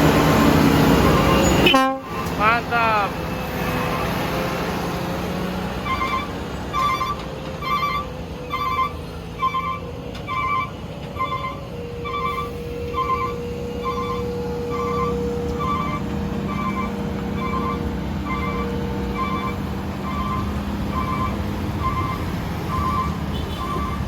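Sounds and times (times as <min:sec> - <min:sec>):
truck diesel engine humming: 0:00.0 - 0:24.0
electronic beeper beeping: 0:05.9 - 0:09.8, 0:10.4 - 0:24.0.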